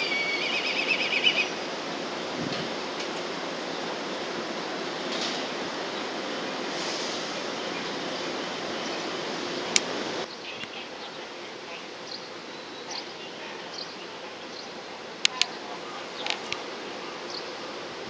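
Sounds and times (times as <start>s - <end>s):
faint high chirps: 0.0s - 1.6s.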